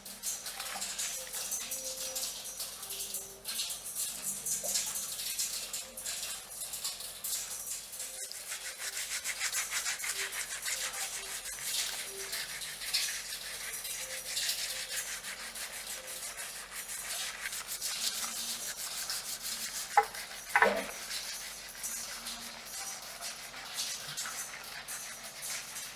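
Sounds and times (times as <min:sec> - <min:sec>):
fingers scratching through hair: 0:08.1 - 0:25.9.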